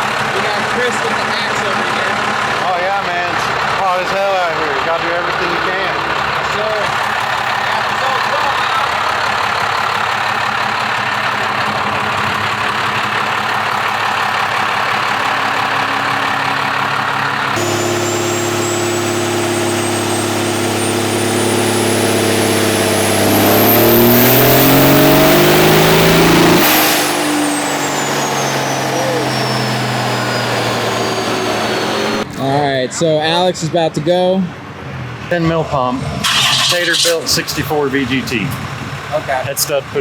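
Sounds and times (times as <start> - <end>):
diesel engine on dyno: 0.0 - 40.0
high turbo whistle: 17.6 - 32.3, 36.2 - 39.1.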